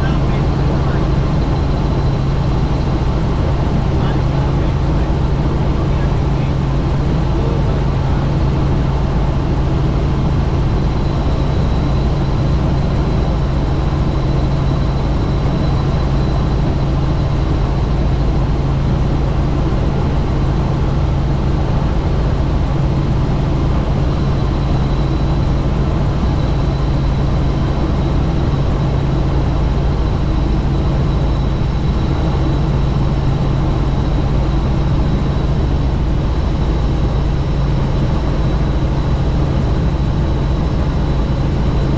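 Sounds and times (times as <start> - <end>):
helicopter drone: 0.0 - 41.9.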